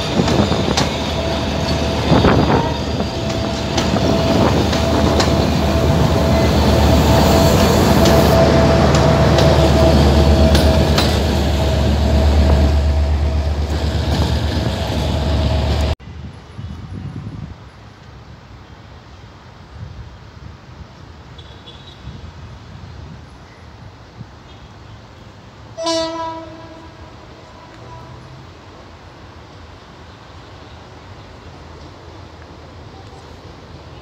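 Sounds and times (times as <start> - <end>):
train wheels clicking over rail joints: 0.0 - 12.7
diesel locomotive rumble: 0.0 - 16.0
train wheel whine: 0.0 - 16.0
outdoor background: 0.0 - 34.0.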